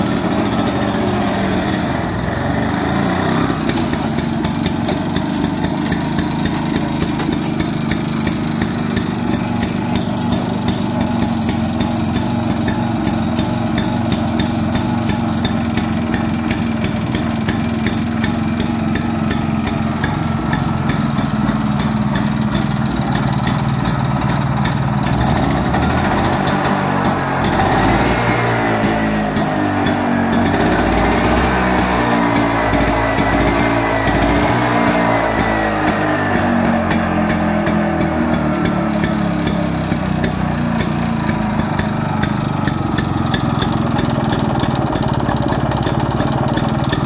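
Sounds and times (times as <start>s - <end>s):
two-stroke tractor engine running: 0.0s - 47.0s.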